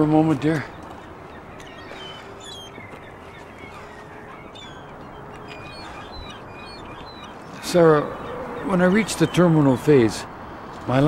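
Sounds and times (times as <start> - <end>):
outdoor background noise: 0.0 - 11.0
short high bird calls: 1.4 - 9.8.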